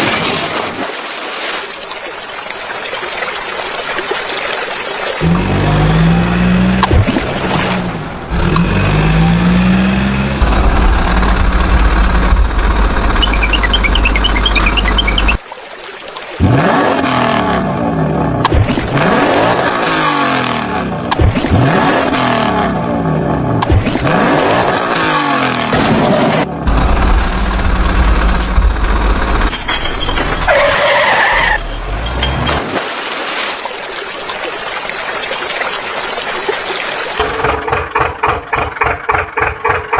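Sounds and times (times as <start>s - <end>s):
engine idling and revving: 5.2s - 15.4s, 16.4s - 29.5s, 37.2s - 39.9s
short high chirps: 13.1s - 15.4s.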